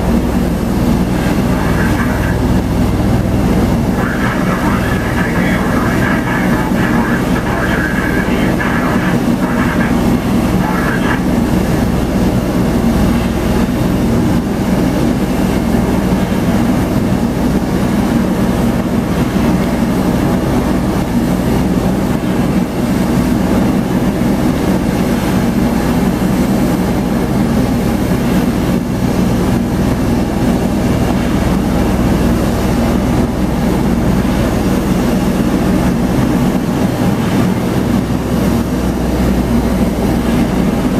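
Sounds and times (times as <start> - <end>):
aircraft engines and rotors droning: 0.0 - 40.9.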